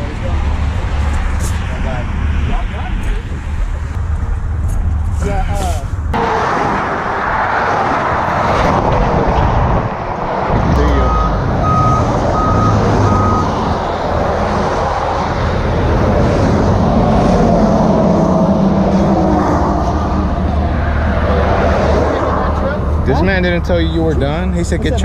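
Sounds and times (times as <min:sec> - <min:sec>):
backup alarm beeping: 0:10.8 - 0:13.6.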